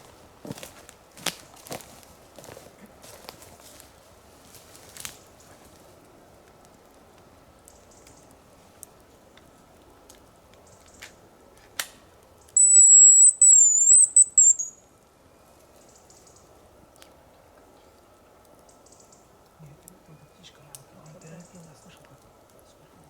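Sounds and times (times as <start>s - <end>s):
high thin decoy whistle: 12.6s - 14.8s.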